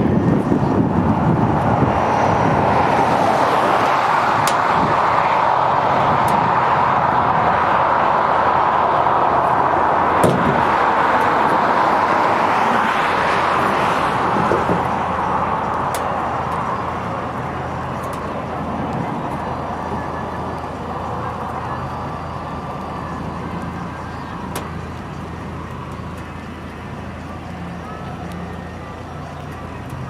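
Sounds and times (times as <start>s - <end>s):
vehicle road and engine noise: 0.0s - 30.0s.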